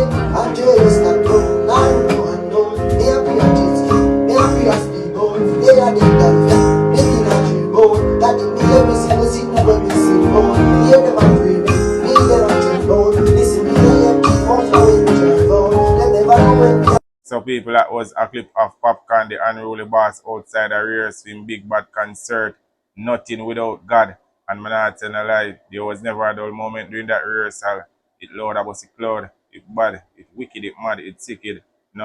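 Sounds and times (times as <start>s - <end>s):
band music with guitar: 0.0s - 17.0s.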